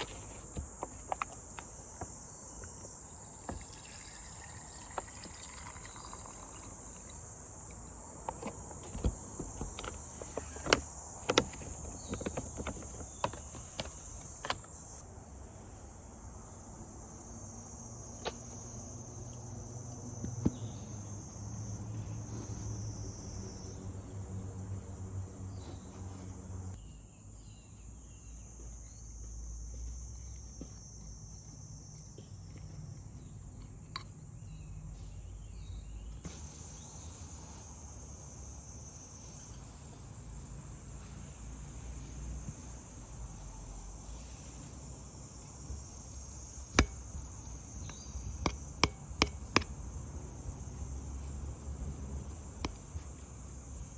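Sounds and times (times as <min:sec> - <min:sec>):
insects chorus: 0:00.0 - 0:53.9
sharp clicks and taps: 0:46.8 - 0:47.1, 0:47.8 - 0:49.8.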